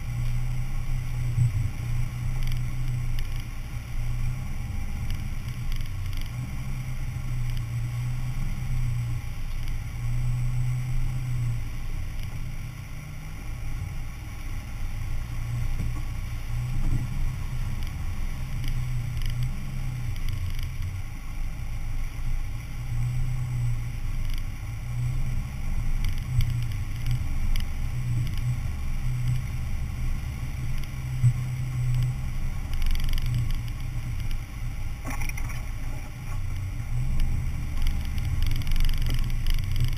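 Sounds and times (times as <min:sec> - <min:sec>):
vehicle engine droning: 0:00.0 - 0:39.9
faint light clatter: 0:30.7 - 0:39.9.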